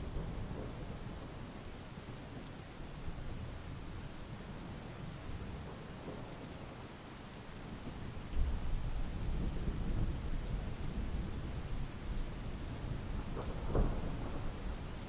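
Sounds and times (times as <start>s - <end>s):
steady rain: 0.0s - 15.0s
rolling thunder: 12.9s - 15.0s.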